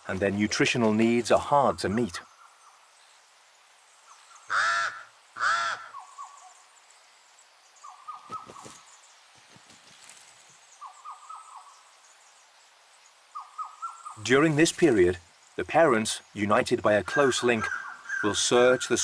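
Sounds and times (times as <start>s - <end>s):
crow cawing harshly: 4.5s - 6.0s.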